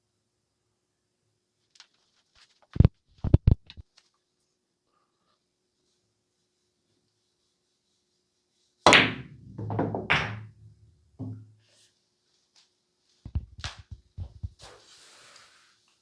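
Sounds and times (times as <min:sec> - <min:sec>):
cue ball cracking into rack: 0:08.9 - 0:11.4
light ball knocks: 0:08.9 - 0:11.4
balls thudding off cushions: 0:08.9 - 0:11.5
billiard balls clacking: 0:08.9 - 0:11.5.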